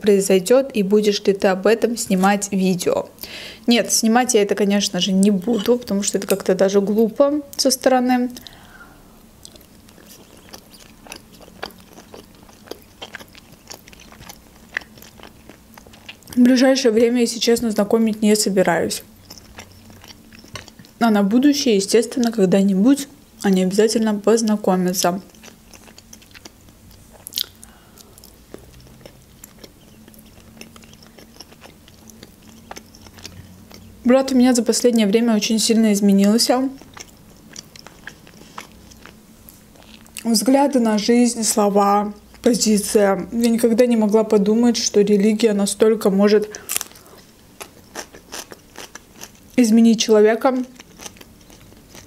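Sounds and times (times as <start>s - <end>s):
person chewing: 9.4s - 16.4s, 19.0s - 21.0s, 25.2s - 34.0s, 36.6s - 40.2s, 46.5s - 49.6s, 50.6s - 52.0s.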